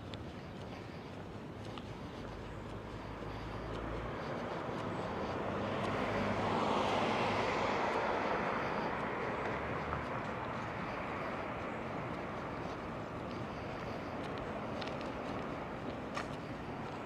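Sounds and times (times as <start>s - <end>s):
vehicle passing: 0.7s - 17.0s.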